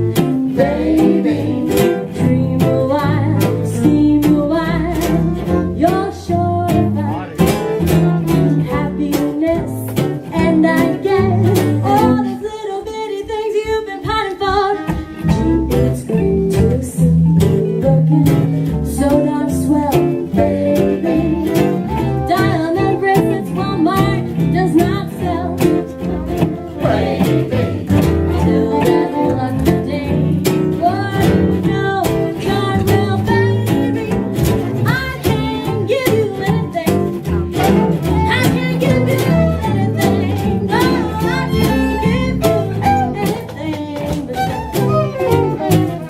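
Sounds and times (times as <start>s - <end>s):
western swing band playing: 0.0s - 46.0s
fiddles playing melody: 21.1s - 30.2s, 36.4s - 46.0s.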